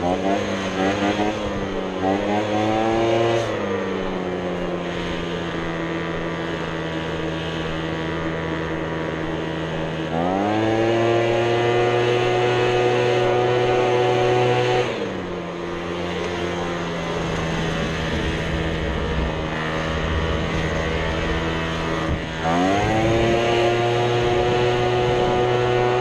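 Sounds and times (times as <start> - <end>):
small gasoline engine running: 0.0 - 26.0.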